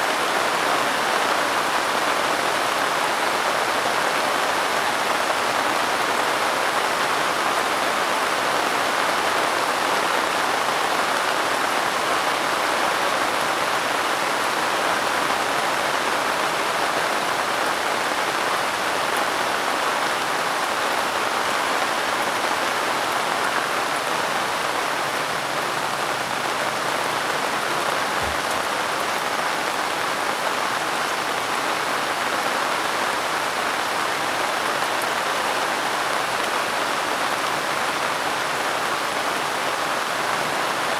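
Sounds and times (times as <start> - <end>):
steady rain falling: 0.0 - 40.9
faint low thud: 28.2 - 28.6.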